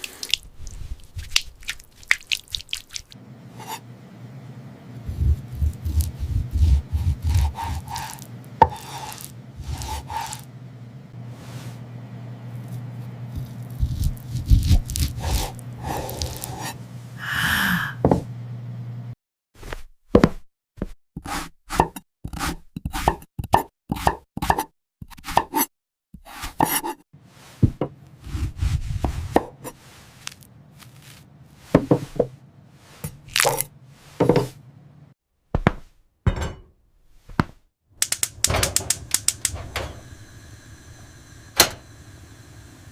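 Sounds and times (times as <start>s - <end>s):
low hum: 3.2s - 8.6s
food preparation knocks and scrapes: 5.1s - 10.5s, 12.6s - 16.8s, 19.6s - 24.6s, 26.2s - 32.4s, 33.0s - 34.6s, 35.5s - 40.1s.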